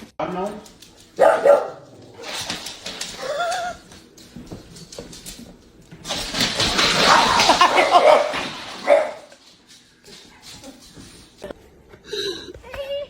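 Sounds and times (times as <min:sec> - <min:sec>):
dog barking: 0:01.2 - 0:01.9, 0:07.8 - 0:09.3.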